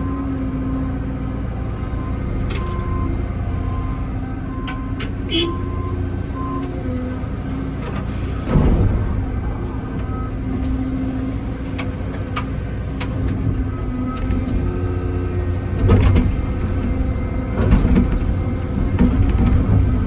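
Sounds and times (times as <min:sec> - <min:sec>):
diesel engine drone: 0:00.0 - 0:20.0
excavator bucket clanks: 0:07.7 - 0:20.0.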